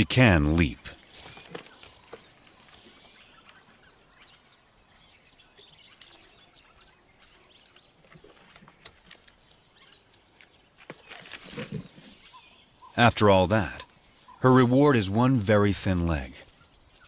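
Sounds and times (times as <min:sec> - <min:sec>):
bird chirps: 0:00.6 - 0:15.6.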